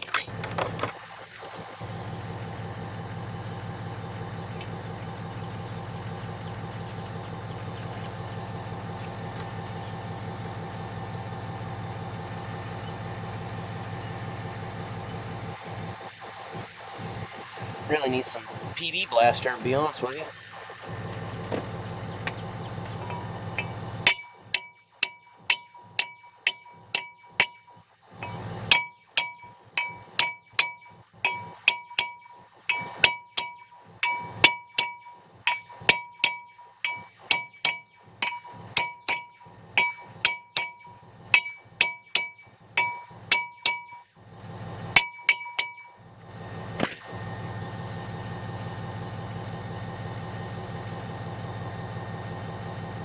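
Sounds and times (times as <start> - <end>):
hammer striking steel: 23.1 - 44.1, 45.0 - 46.0.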